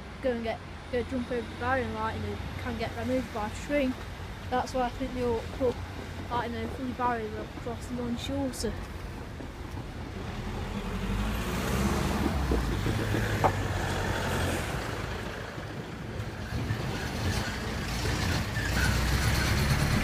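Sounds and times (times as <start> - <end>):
heavy vehicle engine rumbling: 0.0 - 20.0.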